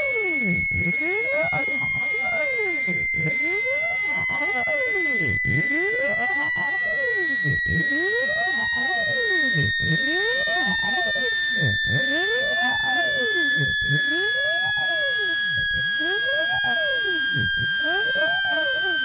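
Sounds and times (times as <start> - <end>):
high electronic tone: 0.0 - 19.0.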